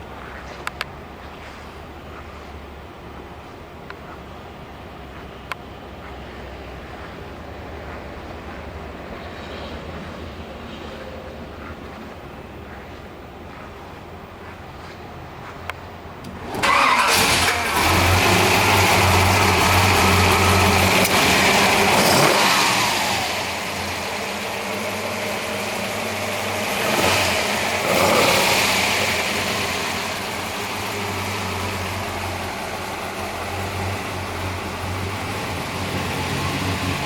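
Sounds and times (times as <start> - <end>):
car engine starting and idling: 0.0 - 37.0
car engine revving: 16.2 - 37.0.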